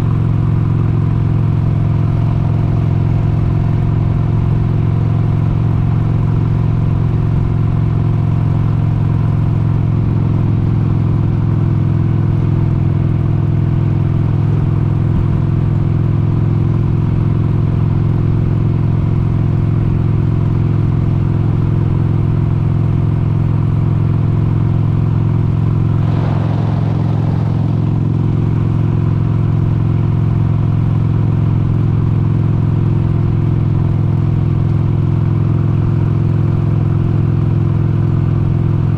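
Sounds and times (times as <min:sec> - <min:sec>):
motorcycle engine cruising: 0:00.0 - 0:38.9
brief rush of noise: 0:26.0 - 0:29.9.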